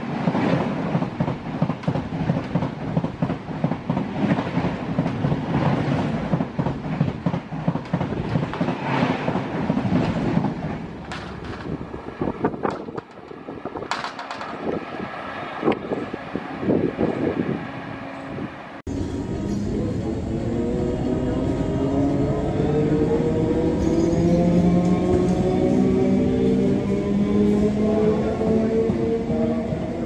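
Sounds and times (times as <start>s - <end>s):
train wheels clattering on rail: 0.2s - 15.0s.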